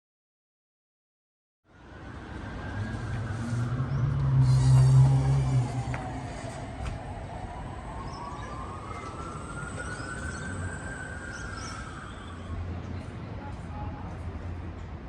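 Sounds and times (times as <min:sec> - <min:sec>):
city traffic: 0:01.7 - 0:15.0
distant siren wailing: 0:01.8 - 0:12.8.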